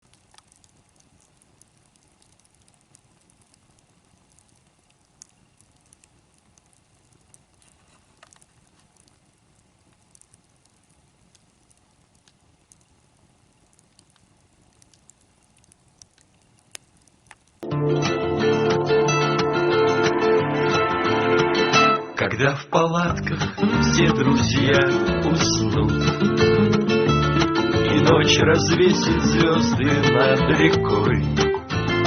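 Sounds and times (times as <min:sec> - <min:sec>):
campfire crackling: 0:00.0 - 0:22.0, 0:23.0 - 0:32.0.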